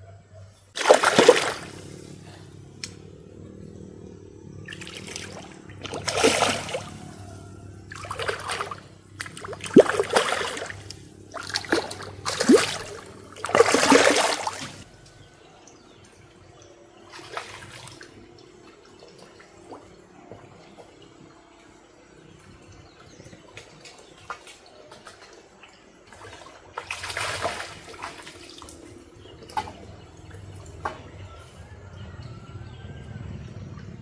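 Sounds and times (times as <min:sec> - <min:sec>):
water splashing in bursts: 0:00.8 - 0:02.9, 0:04.7 - 0:14.9, 0:24.4 - 0:31.3
water trickling: 0:00.8 - 0:32.8.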